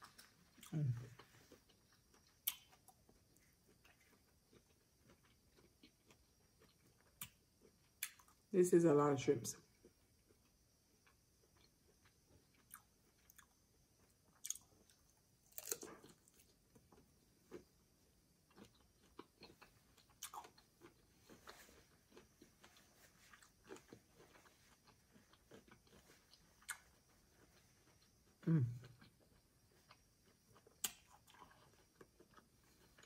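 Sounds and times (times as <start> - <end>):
wet chewing mouth sounds: 18.5 - 33.0.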